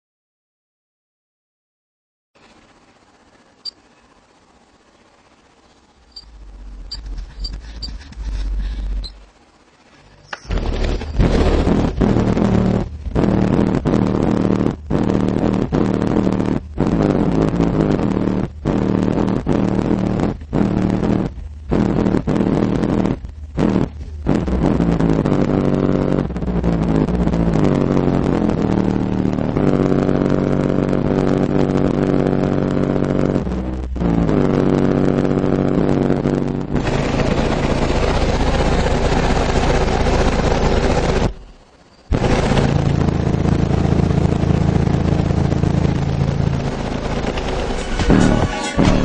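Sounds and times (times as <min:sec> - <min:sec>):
loud bass-heavy music from subwoofers: 0:10.5 - 0:37.0, 0:47.6 - 0:49.0.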